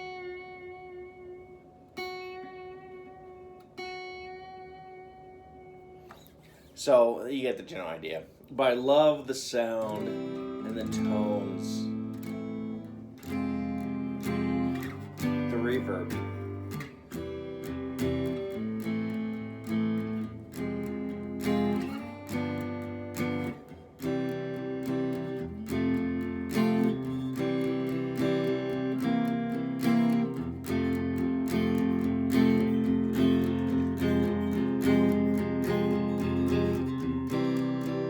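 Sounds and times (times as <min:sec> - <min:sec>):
clean electric guitar ballad: 0:00.0 - 0:06.8, 0:09.6 - 0:38.0.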